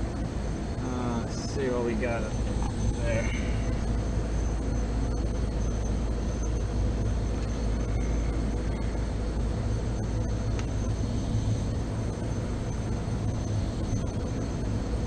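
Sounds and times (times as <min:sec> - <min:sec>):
refrigeration unit humming: 0:00.0 - 0:15.0.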